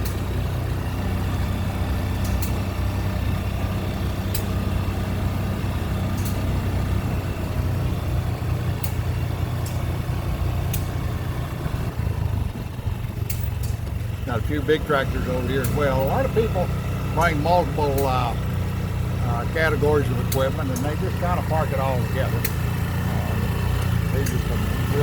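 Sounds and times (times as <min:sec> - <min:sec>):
small engine humming: 0:00.0 - 0:25.0
sharp clicks: 0:02.2 - 0:02.8, 0:06.2 - 0:06.6, 0:08.8 - 0:09.9, 0:13.2 - 0:14.2, 0:15.3 - 0:16.5, 0:20.0 - 0:24.9.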